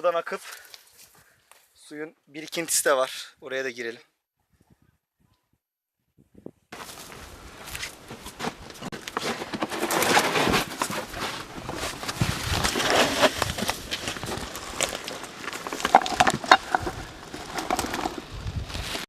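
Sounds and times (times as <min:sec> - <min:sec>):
footsteps crunching on gravel: 0:06.8 - 0:19.0
rustling and brushing: 0:06.8 - 0:19.0.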